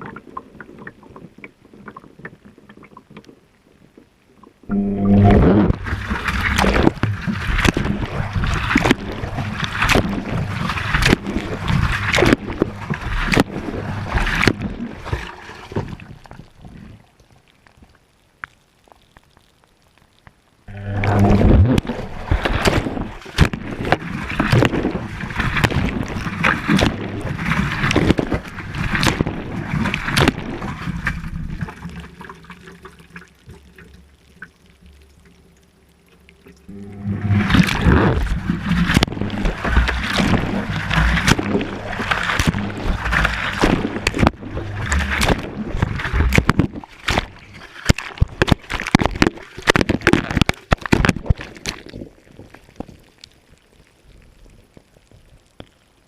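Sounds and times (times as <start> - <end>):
water sloshing in washing machine drum: 36.7 - 49.9.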